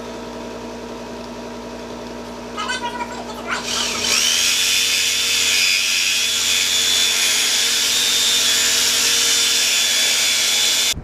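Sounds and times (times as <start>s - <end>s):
power tool whining: 3.4s - 11.0s.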